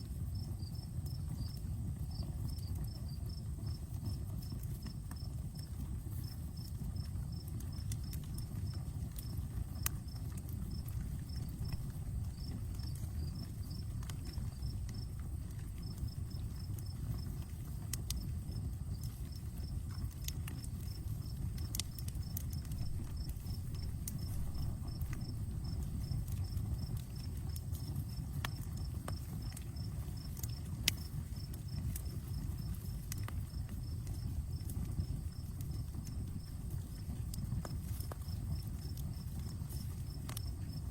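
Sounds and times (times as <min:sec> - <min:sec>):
campfire flames rushing: 0:00.0 - 0:40.9
fire crackling and popping: 0:00.0 - 0:40.9
insect chirping: 0:09.8 - 0:17.3, 0:20.8 - 0:40.9.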